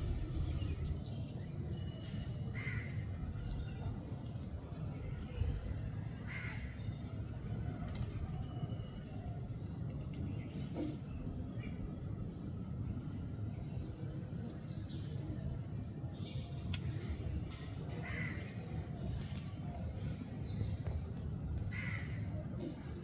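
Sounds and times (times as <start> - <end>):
steady low rumble: 0.0 - 5.9
birds chirping: 10.2 - 22.3.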